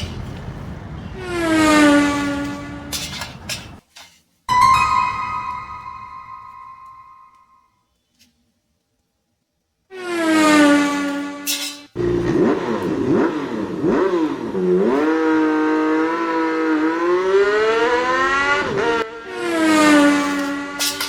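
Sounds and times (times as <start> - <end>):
car engines revving: 0.1 - 3.6, 12.0 - 21.0.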